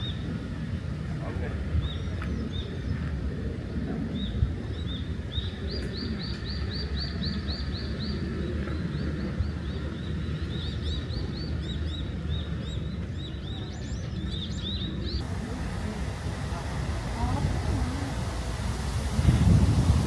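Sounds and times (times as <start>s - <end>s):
birds chirping: 4.2s - 19.4s
steady low rumble: 15.1s - 20.0s.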